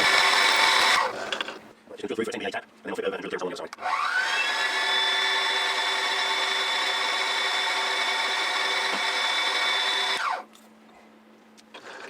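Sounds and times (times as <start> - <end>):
milling machine spindle whine: 0.0 - 1.3, 3.8 - 10.4.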